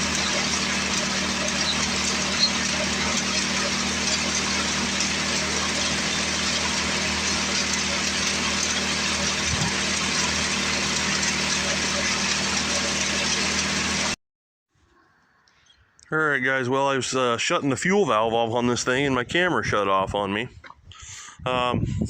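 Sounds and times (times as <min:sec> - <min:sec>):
small engine running steadily: 0:00.0 - 0:14.2.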